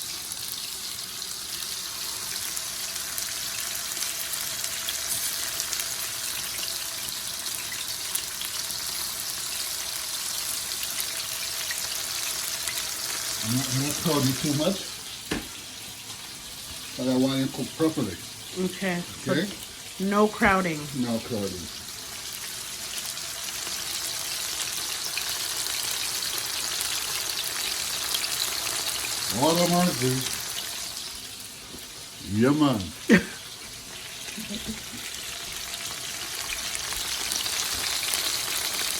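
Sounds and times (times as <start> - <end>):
chicken frying in oil: 0.0 - 38.9
oil crackles: 10.5 - 38.9.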